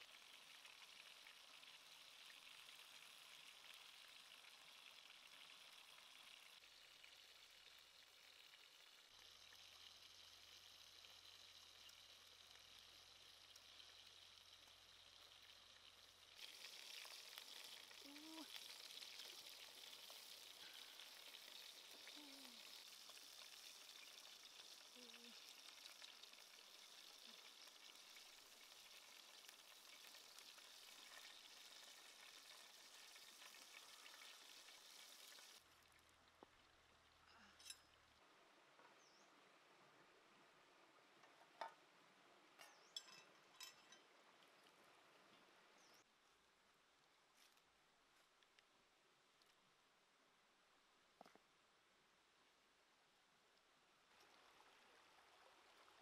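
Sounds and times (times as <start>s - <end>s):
food sizzling in a frying pan: 8.4s - 35.6s.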